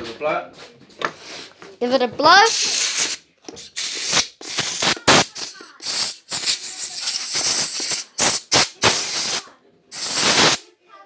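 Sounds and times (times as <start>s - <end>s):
air blow gun hissing: 2.5s - 10.6s.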